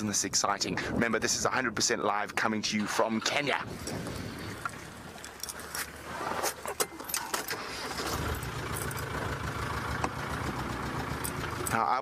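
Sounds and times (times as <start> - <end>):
vehicle engine starting and humming: 6.0 - 12.0.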